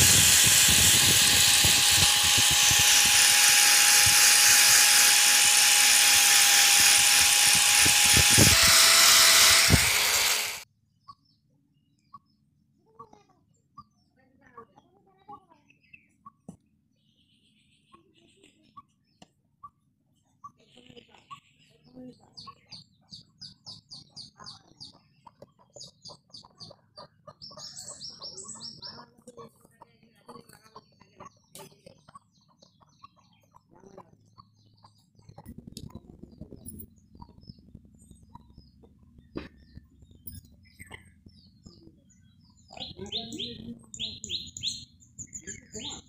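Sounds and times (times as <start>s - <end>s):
angle grinder whining: 0.0s - 10.6s
birds chirping: 7.5s - 46.0s.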